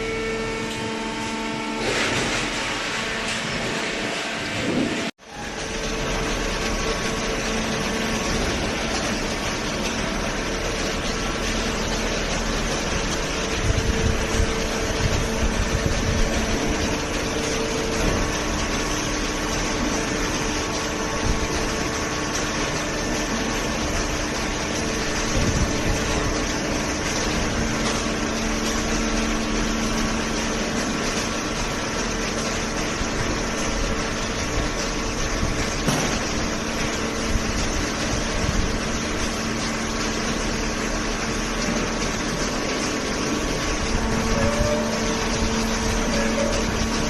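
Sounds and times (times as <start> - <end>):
baler hydraulic pump hum: 0.0 - 47.0.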